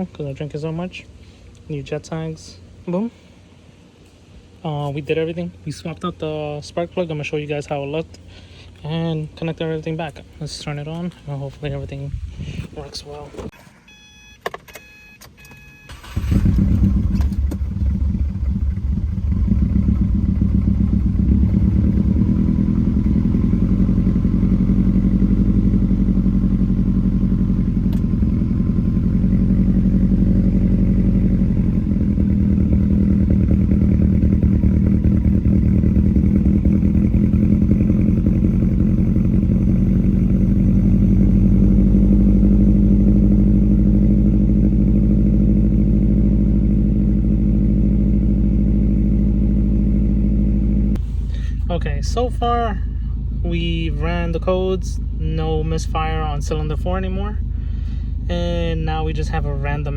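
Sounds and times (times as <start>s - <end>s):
car engine starting and idling: 14.6s - 59.9s.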